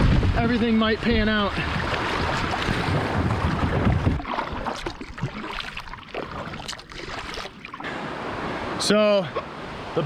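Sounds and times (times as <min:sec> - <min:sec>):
wind rumble on microphone: 0:00.0 - 0:05.3
river water rushing: 0:00.0 - 0:10.0
paddle splashes and drips: 0:01.0 - 0:08.0.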